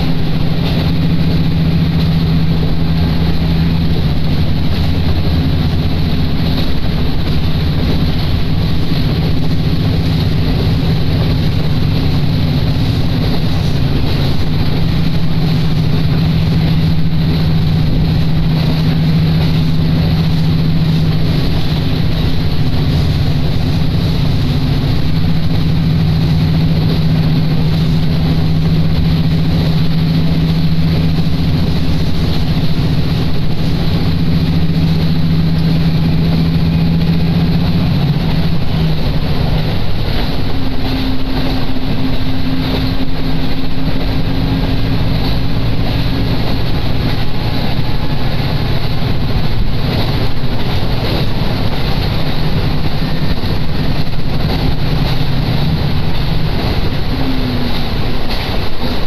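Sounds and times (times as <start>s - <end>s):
diesel railcar engine drone: 0.0s - 59.0s
rail running noise: 0.0s - 59.0s
higher steady tone: 55.3s - 59.0s.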